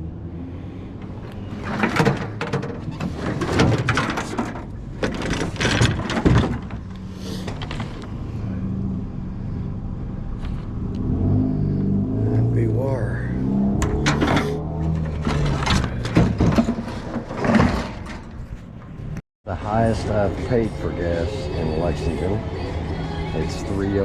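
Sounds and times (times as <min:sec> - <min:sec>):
vehicle engine rumble: 0:00.0 - 0:24.0
clattering and rattling: 0:01.0 - 0:08.2, 0:13.8 - 0:19.2.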